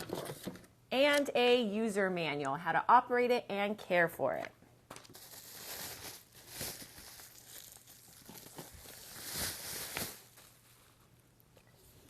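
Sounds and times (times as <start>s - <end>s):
packaging crinkling: 4.9s - 11.2s.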